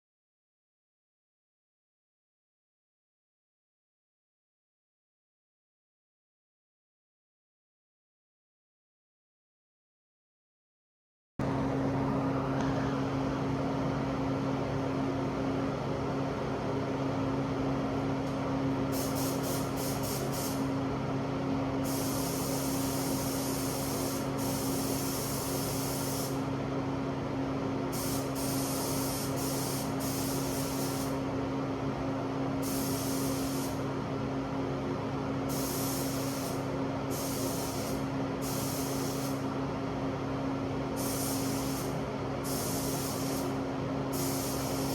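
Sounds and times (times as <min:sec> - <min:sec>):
low motor hum: 0:11.4 - 0:18.9
spray gun hissing: 0:18.9 - 0:20.7, 0:21.8 - 0:26.4, 0:27.9 - 0:31.2, 0:32.6 - 0:33.8, 0:35.5 - 0:39.4, 0:41.0 - 0:44.9.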